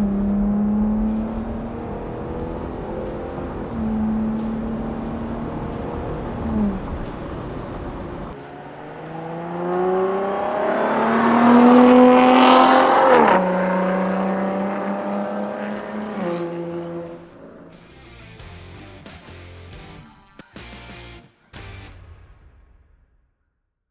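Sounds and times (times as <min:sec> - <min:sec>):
car engine exhaust revving: 0:00.0 - 0:17.8.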